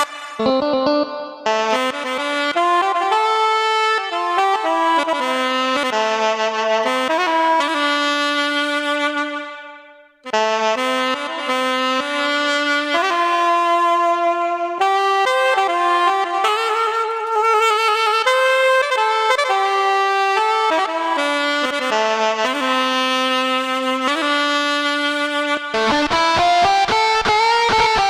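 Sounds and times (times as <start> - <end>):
keyboard saxophone melody: 0.0 - 28.0.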